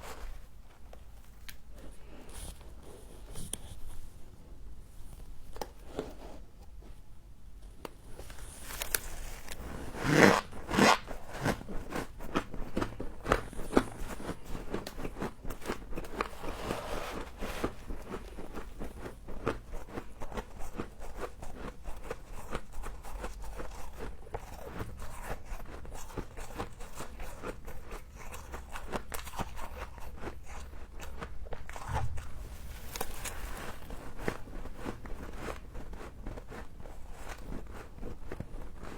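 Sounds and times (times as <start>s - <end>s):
frost being chewed: 11.0s - 38.9s.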